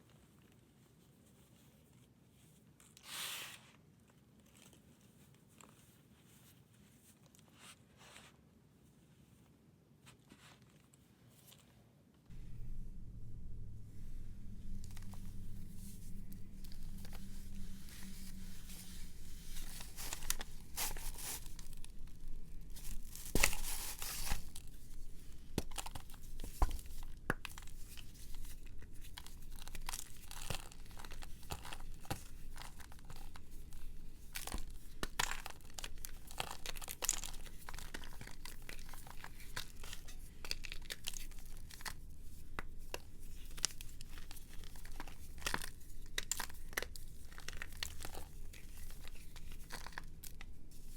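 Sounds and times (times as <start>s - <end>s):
brittle material crunching: 12.6s - 50.9s.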